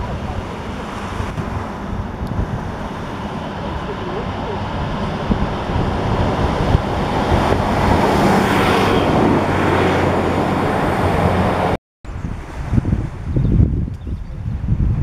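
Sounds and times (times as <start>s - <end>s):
train wheel and rail noise: 0.0s - 11.7s
diesel train engine hum: 0.0s - 11.8s.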